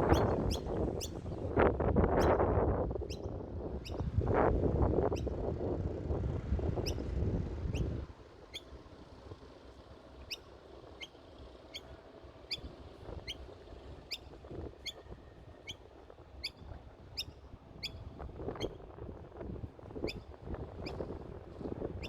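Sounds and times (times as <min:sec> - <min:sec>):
bird chirping: 0:00.1 - 0:01.2.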